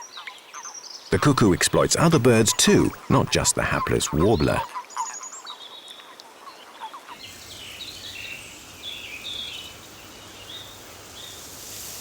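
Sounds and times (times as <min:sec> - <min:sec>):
small birds chirping: 0:07.2 - 0:11.5.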